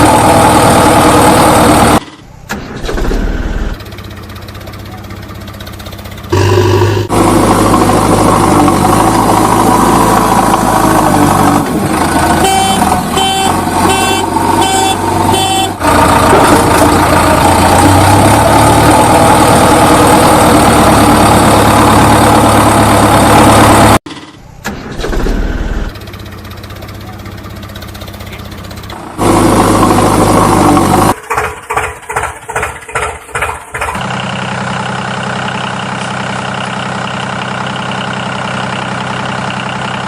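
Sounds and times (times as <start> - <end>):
heavy diesel engine running: 0.0 - 40.0
repeated beeping: 2.0 - 2.4.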